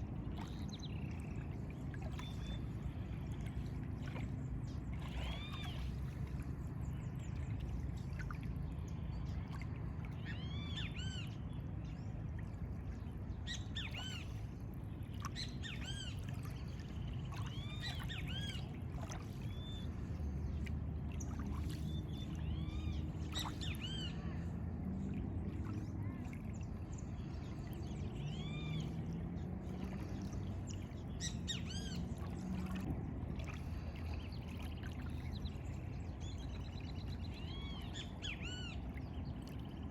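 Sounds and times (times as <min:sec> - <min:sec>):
steady low rumble: 0:00.0 - 0:39.9.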